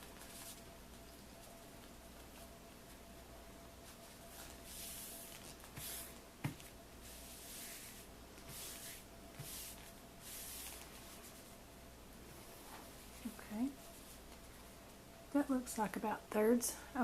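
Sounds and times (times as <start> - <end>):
paper napkin rustling and crinkling: 3.8 - 6.2.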